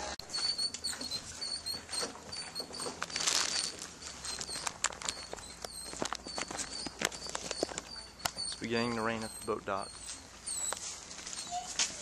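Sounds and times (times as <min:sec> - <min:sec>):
small birds chirping: 0:00.3 - 0:12.0
raindrops pattering: 0:03.0 - 0:08.2.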